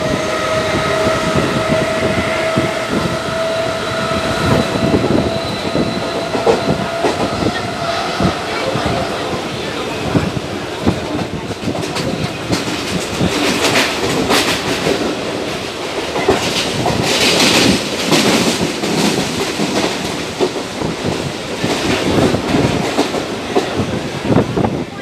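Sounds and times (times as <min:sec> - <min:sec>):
train wheels clattering: 0:00.0 - 0:09.0, 0:10.8 - 0:24.0
train rushing noise: 0:00.0 - 0:25.0.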